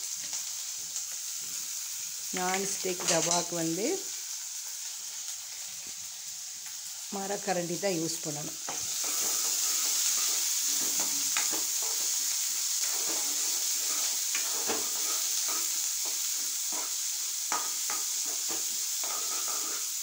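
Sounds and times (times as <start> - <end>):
onions sizzling in a pan: 0.0 - 20.0
wooden spatula scraping a pan: 8.7 - 20.0.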